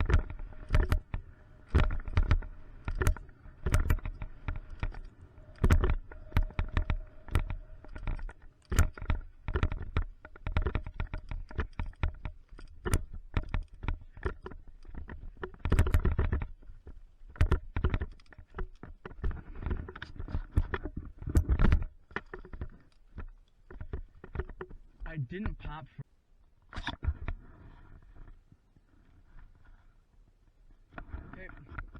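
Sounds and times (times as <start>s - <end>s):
bike rattling over rocks: 0.0s - 25.1s.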